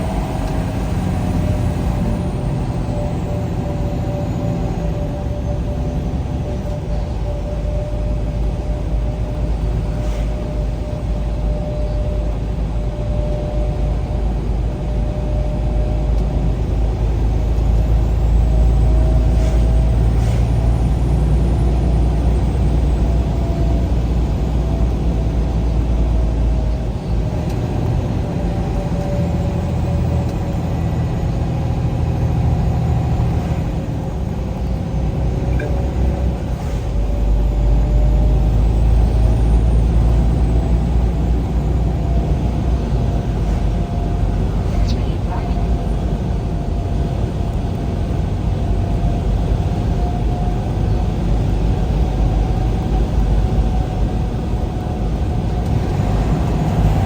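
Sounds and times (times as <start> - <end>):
vehicle engine and tyre rumble: 0.0 - 57.0.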